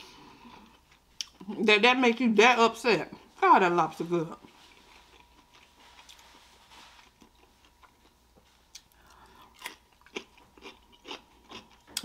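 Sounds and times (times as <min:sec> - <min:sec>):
cucumber crunching: 0:04.4 - 0:12.0.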